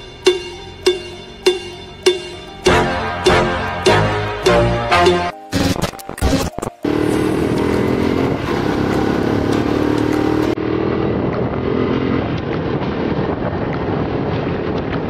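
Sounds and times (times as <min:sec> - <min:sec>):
motorcycle engine running: 0:06.8 - 0:12.7.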